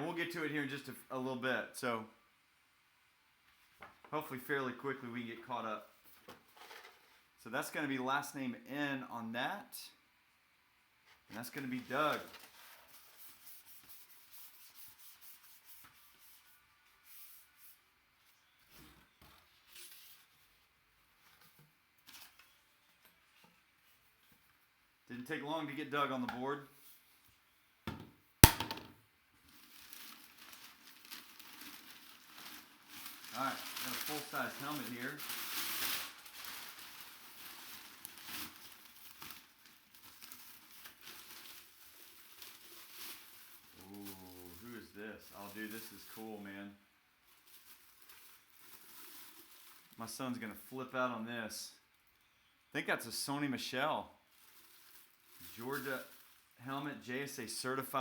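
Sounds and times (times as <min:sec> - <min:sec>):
faint rustling and rubbing: 0:05.8 - 0:07.4, 0:11.0 - 0:24.8, 0:29.4 - 0:46.5, 0:54.3 - 0:57.3
plastic packaging crinkling: 0:11.6 - 0:13.3, 0:29.5 - 0:46.2, 0:47.2 - 0:50.0, 0:54.3 - 0:56.6.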